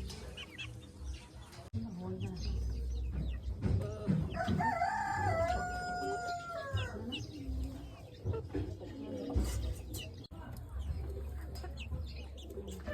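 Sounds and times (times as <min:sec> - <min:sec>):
chickens clucking: 0:00.0 - 0:12.9
rooster crowing: 0:04.4 - 0:06.8.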